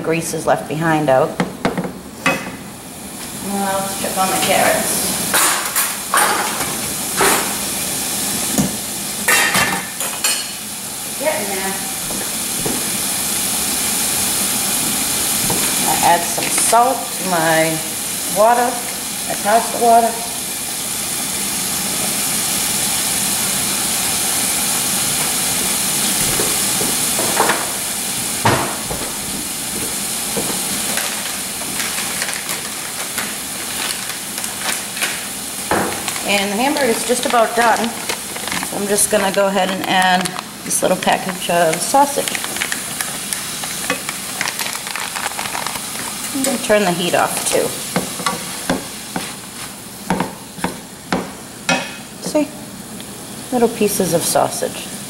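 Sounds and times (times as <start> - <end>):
steam hissing and water boiling: 0.0 - 55.0
meat sizzling in a frying pan: 2.6 - 55.0
utensil knocking on a pan: 50.1 - 52.0.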